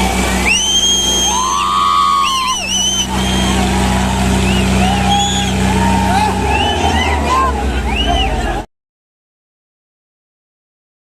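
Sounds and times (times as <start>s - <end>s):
diesel tractor engines under load: 0.0s - 8.7s
people shouting calls: 0.4s - 8.7s.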